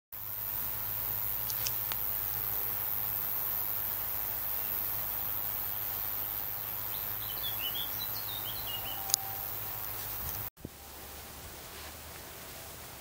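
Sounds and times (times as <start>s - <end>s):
outdoor background noise: 0.1s - 13.0s
bird chirping: 6.1s - 9.9s.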